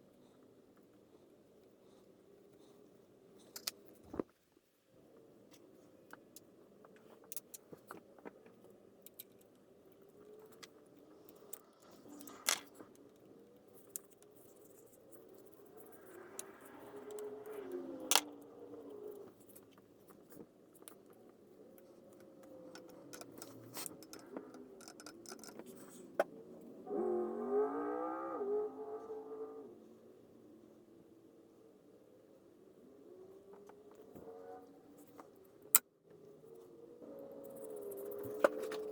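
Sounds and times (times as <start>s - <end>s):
metal parts clicking and scraping: 9.0s - 21.2s, 21.8s - 26.2s, 37.4s - 38.9s.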